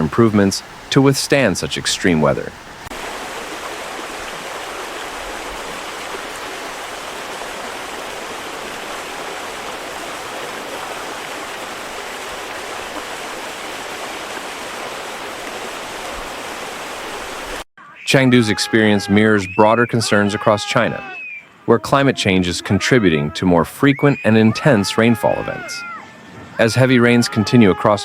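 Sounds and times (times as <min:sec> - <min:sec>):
heavy rain and rushing water: 0:00.0 - 0:28.0.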